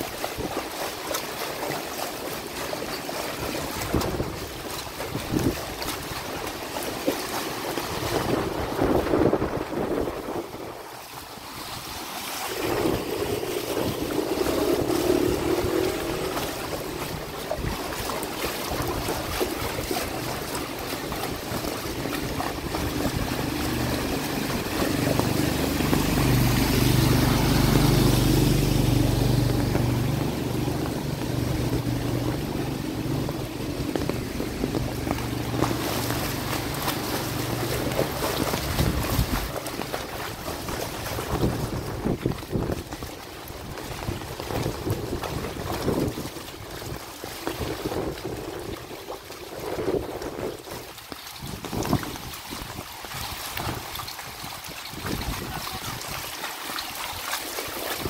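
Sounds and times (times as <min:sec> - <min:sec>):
floodwater running: 0:00.0 - 0:58.0
rain falling: 0:12.4 - 0:42.8
vehicle engine passing: 0:12.5 - 0:18.2, 0:21.9 - 0:39.9.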